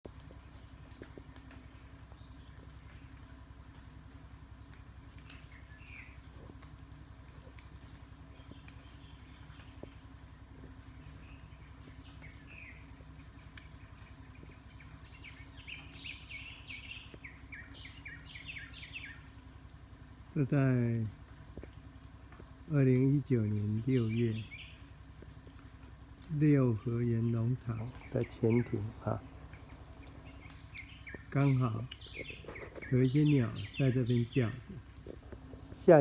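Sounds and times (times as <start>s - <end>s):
insects droning: 0.1s - 36.0s
low steady hum: 0.1s - 36.0s
birds chirping: 14.2s - 19.4s, 22.6s - 36.0s.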